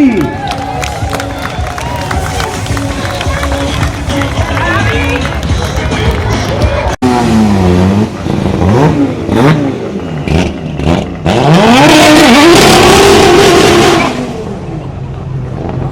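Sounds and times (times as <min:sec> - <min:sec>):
rally car engine revving: 0:05.7 - 0:15.9.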